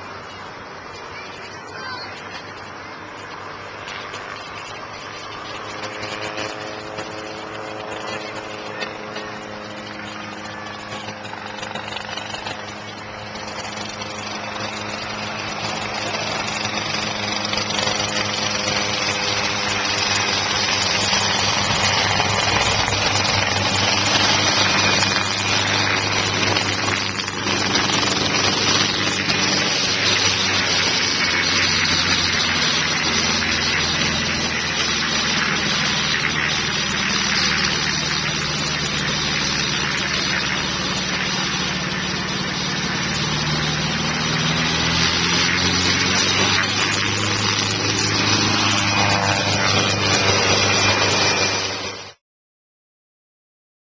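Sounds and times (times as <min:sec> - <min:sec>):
helicopter engine and rotor: 0:00.0 - 0:52.2.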